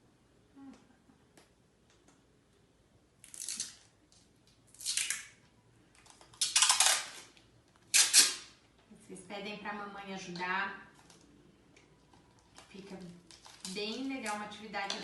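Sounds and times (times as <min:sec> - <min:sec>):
adhesive tape pulled off roll: 0:03.2 - 0:03.9, 0:06.3 - 0:08.6.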